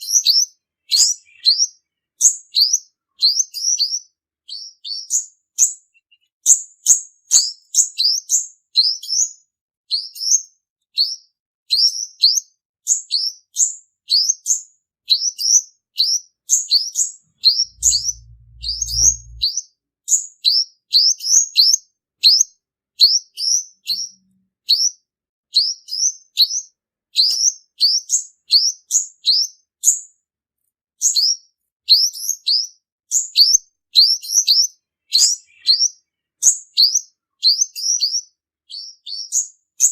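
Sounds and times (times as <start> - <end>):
brief low hum: 17.4 - 19.5.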